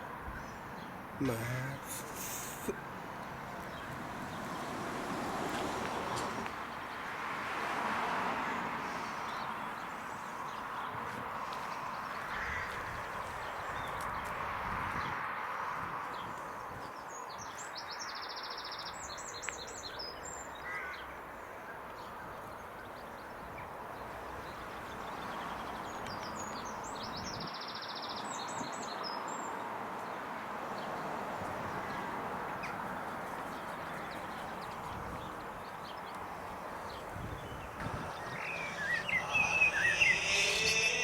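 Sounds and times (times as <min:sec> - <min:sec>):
songbird singing trills: 0:33.6 - 0:41.0
rushing background noise: 0:34.0 - 0:41.0.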